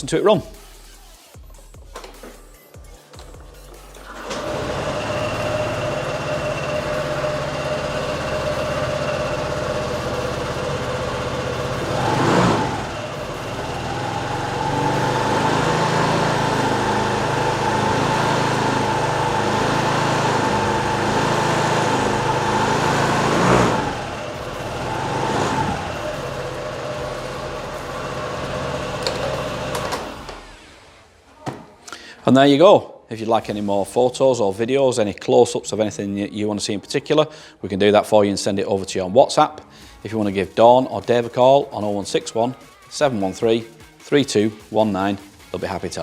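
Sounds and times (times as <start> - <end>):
scooter engine starting and idling: 3.5 - 31.1
scooter engine revving: 3.9 - 31.0.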